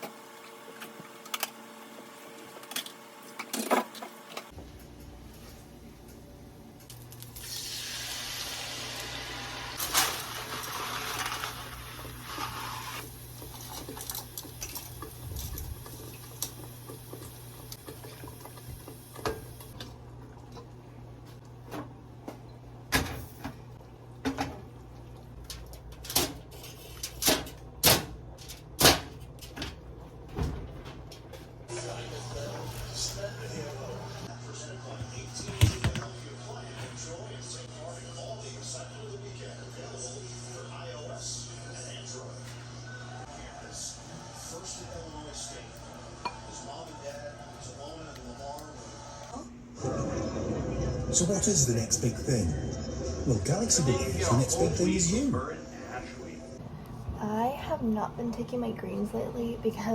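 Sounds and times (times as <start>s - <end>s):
tap running with a hiss: 7.2s - 19.9s
low hum: 49.0s - 59.8s.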